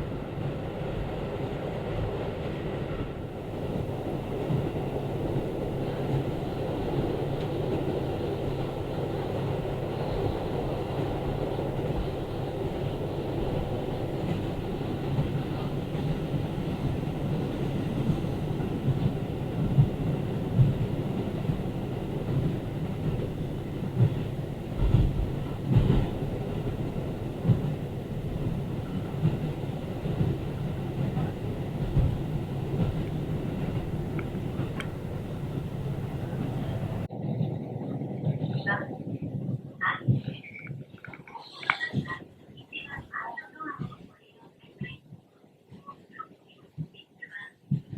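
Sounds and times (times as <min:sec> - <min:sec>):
railcar engine and wheels rumble: 0:00.0 - 0:47.9
heavy train thumps: 0:02.9 - 0:37.1.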